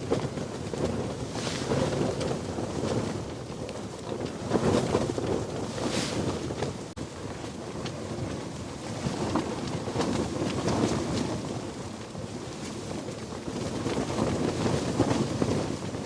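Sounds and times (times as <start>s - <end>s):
wind gusting over microphone: 0.0s - 7.0s.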